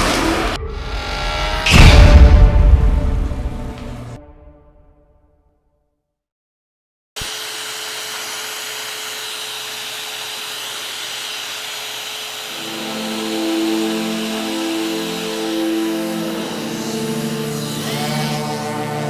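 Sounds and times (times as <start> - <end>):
music: 1.6 - 6.2, 12.6 - 19.0
power tool whirring: 7.2 - 19.0.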